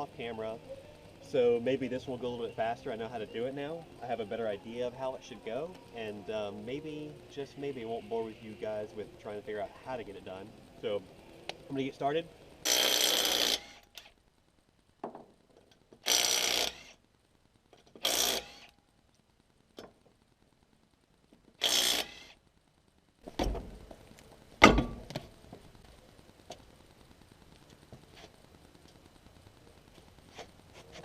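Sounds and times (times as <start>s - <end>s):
pneumatic air tool bursts: 12.6s - 14.1s, 16.0s - 17.0s, 18.0s - 18.7s, 21.6s - 22.4s.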